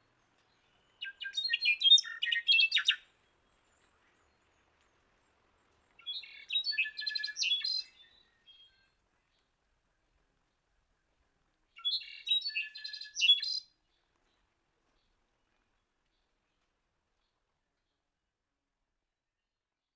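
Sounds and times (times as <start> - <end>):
songbird chirping: 0.0 - 18.2.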